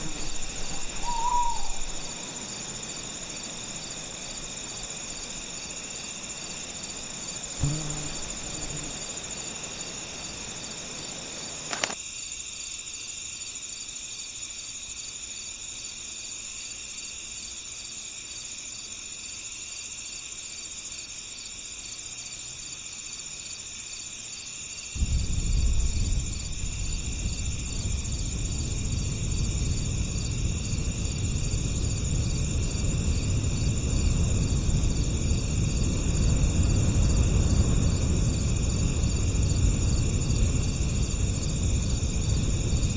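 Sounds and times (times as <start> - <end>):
low rushing breeze: 0.0 - 12.0, 25.0 - 42.9
crickets chirping: 0.0 - 42.9
short click: 11.7 - 12.0.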